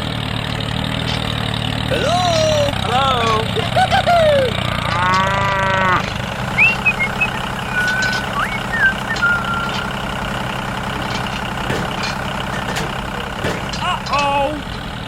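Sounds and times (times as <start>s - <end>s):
small tractor engine running: 0.0s - 15.0s
cow-like moo: 4.9s - 6.0s
short high chirps: 6.6s - 10.0s.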